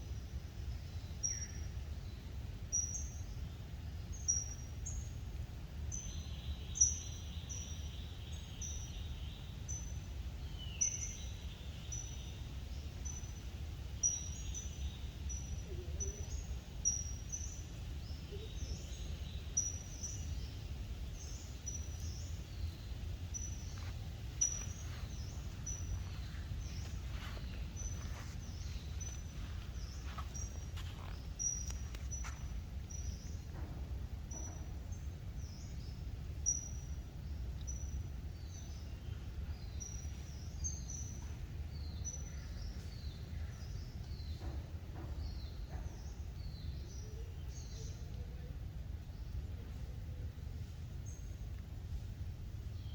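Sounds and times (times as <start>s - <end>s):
steady low rumble: 0.0s - 52.9s
small bird chirping: 5.9s - 33.5s.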